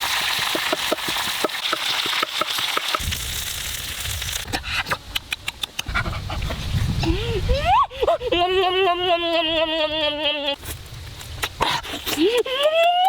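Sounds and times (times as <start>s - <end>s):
food sizzling in hot oil: 0.0s - 4.5s
sharp clicks: 5.1s - 6.0s.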